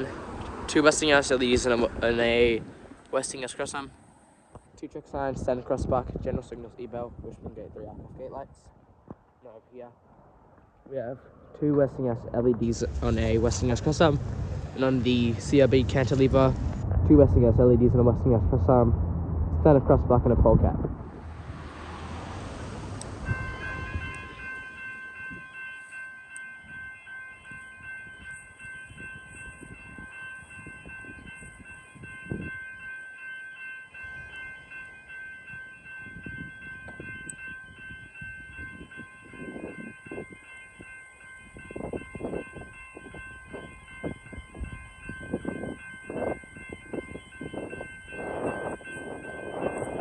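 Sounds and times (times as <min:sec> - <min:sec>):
level crossing electronic bell: 0:23.2 - 0:50.0.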